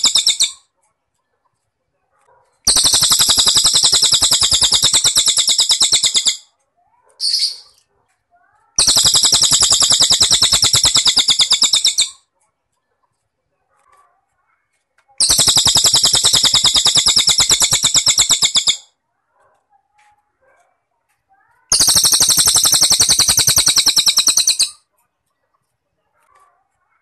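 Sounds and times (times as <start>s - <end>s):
bird trilling: 0.0s - 0.6s, 2.7s - 6.4s, 7.2s - 7.8s, 8.8s - 12.2s, 15.2s - 18.9s, 21.7s - 24.8s
crickets chirping: 2.7s - 6.4s, 21.7s - 24.7s
short high chirp: 21.7s - 24.8s.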